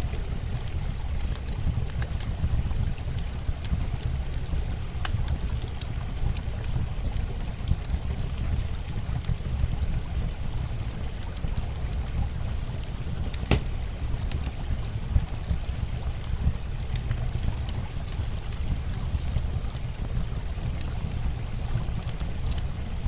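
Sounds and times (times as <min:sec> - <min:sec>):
campfire crackling and popping: 0:00.2 - 0:22.8
running water: 0:09.0 - 0:23.0.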